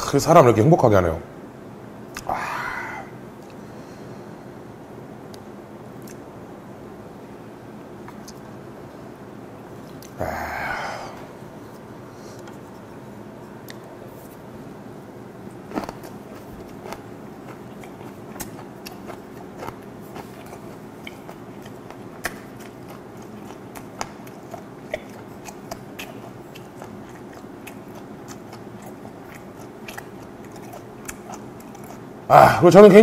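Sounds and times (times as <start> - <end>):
loud bite: 2.1 - 3.6, 15.7 - 32.6
wet chewing mouth sounds: 8.0 - 8.5, 15.5 - 32.3.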